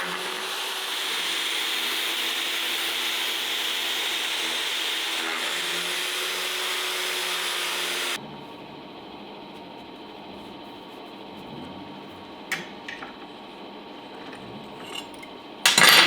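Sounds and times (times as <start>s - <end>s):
power tool whirring: 0.0s - 8.2s.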